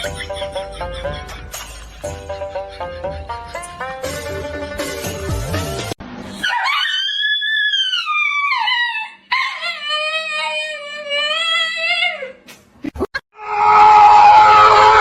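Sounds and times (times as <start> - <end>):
dog howling: 6.4 - 12.3, 13.4 - 15.0.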